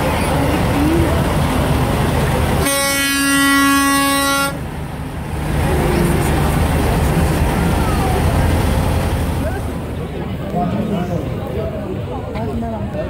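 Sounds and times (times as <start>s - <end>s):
truck air horn blast: 2.6s - 4.6s.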